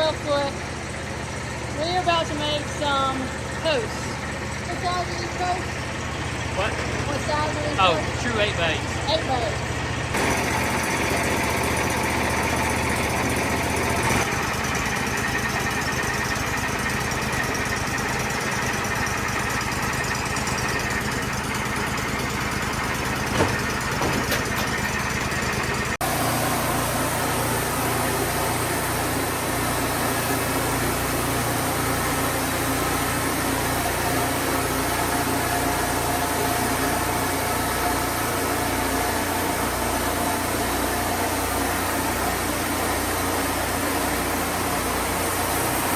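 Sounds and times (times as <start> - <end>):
sawmill engine running: 0.0 - 45.9
short knock: 23.3 - 25.0.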